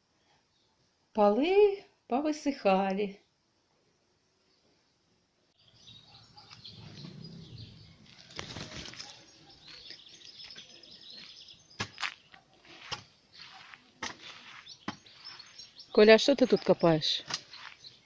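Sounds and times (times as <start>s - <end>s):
small birds chirping: 4.3s - 18.0s.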